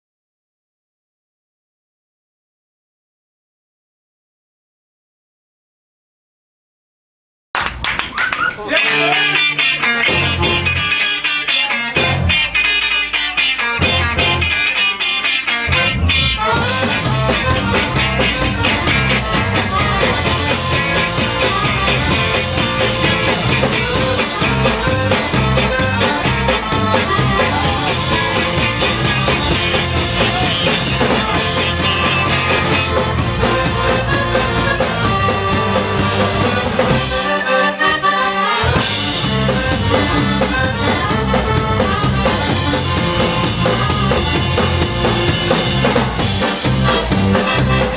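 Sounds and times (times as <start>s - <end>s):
instrumental rock music: 8.5s - 47.9s
bass and drum beat: 8.8s - 37.3s, 38.7s - 47.9s.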